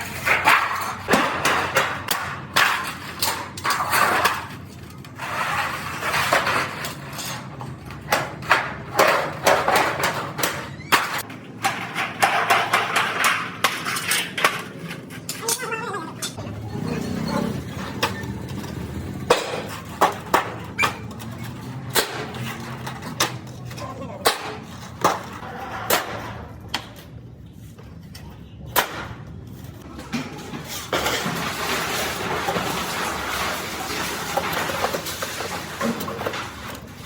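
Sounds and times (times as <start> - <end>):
workshop background noise: 0.0 - 37.0.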